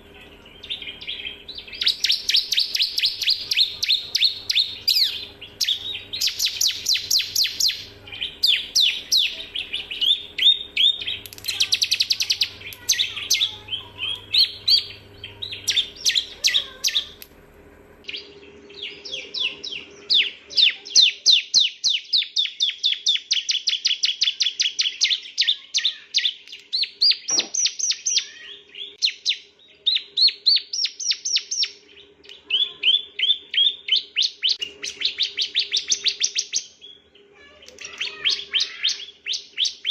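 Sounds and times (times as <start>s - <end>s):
bird singing sharp chirps: 0.3s - 17.2s, 37.8s - 39.9s.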